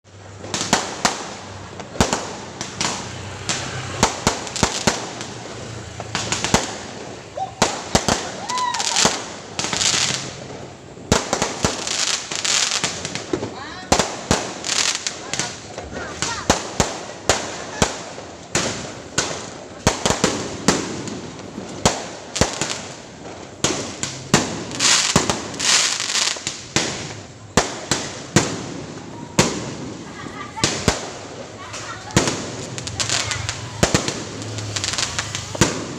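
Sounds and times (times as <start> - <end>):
firecrackers crackling: 0.1 - 35.9
fireworks sharp bangs: 0.1 - 35.9
distant detonations: 26.6 - 35.9.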